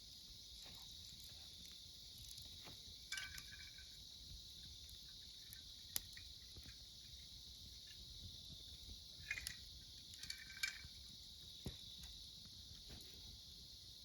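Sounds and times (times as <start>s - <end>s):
campfire crackling: 0.0s - 14.0s
crickets chirring: 0.0s - 14.0s.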